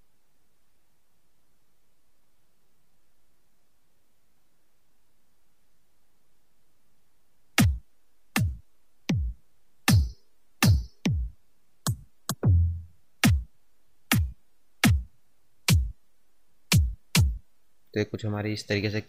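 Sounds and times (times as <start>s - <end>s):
electronic kick drum thumps: 7.6s - 7.8s, 8.4s - 13.5s, 14.1s - 15.1s, 15.7s - 16.0s, 16.7s - 17.4s.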